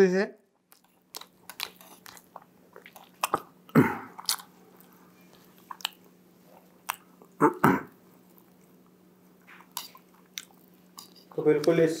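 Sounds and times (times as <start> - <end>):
man chewing food: 0.6 - 11.7
loud mouth noise: 7.4 - 8.0.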